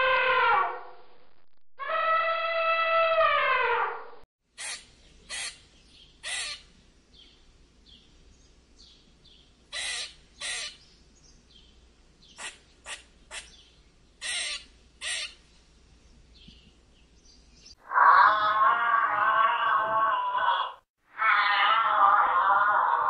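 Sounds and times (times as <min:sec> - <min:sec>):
squirrel barking calls: 0:04.6 - 0:06.7, 0:09.7 - 0:10.8, 0:12.3 - 0:15.4.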